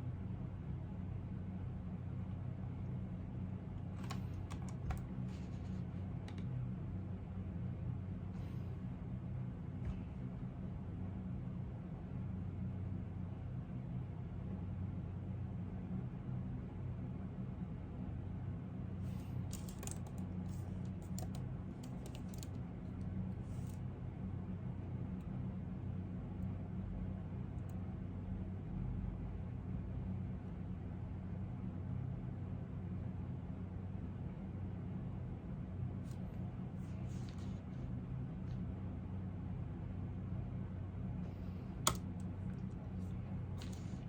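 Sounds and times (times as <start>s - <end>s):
low background hum: 0.0s - 44.0s
keyboard keystroke clicks: 21.0s - 22.5s, 41.9s - 42.1s.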